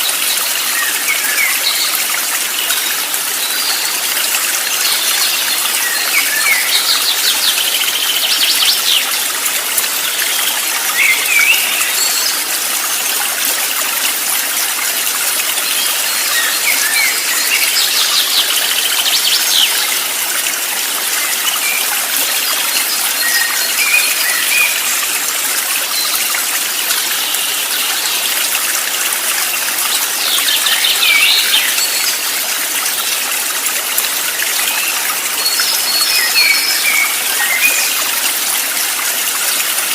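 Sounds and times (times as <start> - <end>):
birds chirping and trilling: 0.0 - 13.1, 15.5 - 20.6, 29.4 - 32.4, 34.6 - 38.3
stream water rushing: 0.0 - 39.9.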